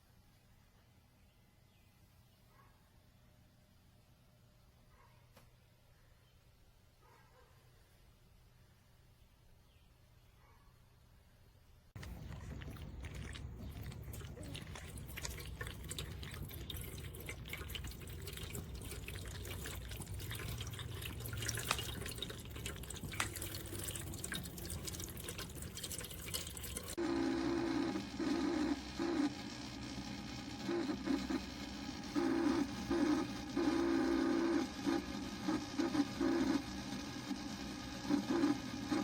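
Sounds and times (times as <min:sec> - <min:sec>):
water trickling and dripping: 0:12.0 - 0:27.0.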